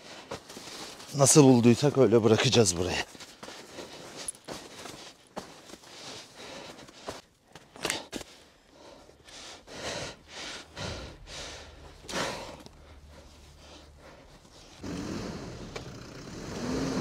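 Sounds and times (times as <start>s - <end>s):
vehicle engine idling: 11.2s - 17.0s.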